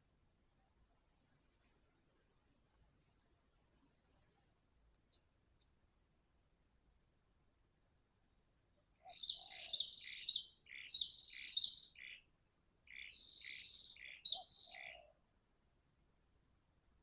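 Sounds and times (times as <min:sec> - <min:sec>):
high falling bird chirps: 0:09.0 - 0:12.3, 0:12.9 - 0:15.1.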